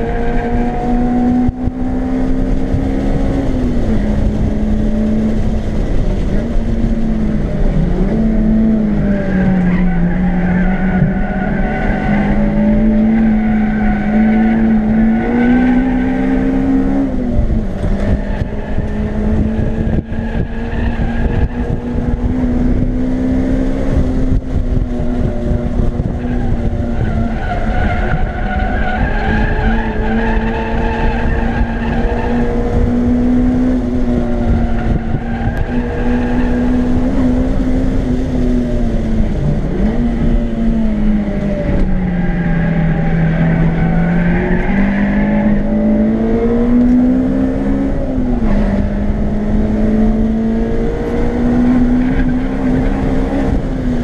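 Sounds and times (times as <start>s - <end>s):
car engine revving high: 0.0s - 54.0s.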